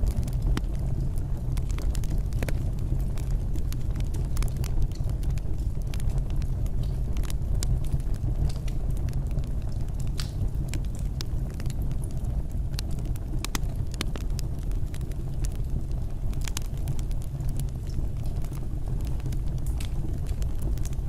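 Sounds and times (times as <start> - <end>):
fire crackles and pops: 0.0 - 21.0
fire flames rumbling: 0.0 - 21.0.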